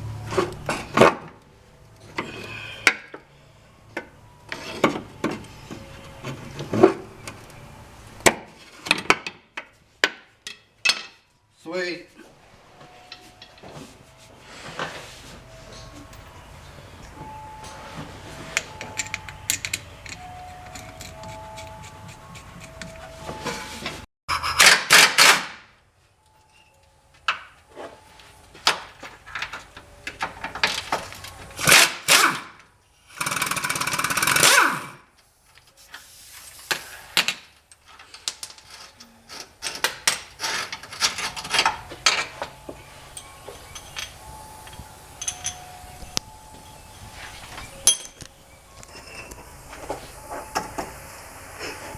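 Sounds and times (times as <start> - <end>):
hand tools clinking and knocking: 8.5 - 11.3, 12.8 - 14.0, 17.0 - 24.0, 37.2 - 51.0.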